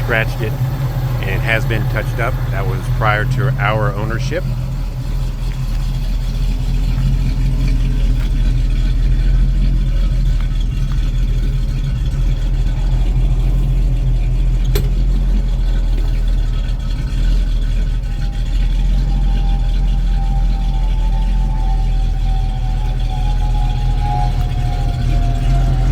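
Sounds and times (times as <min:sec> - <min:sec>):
car engine idling: 0:00.0 - 0:25.9.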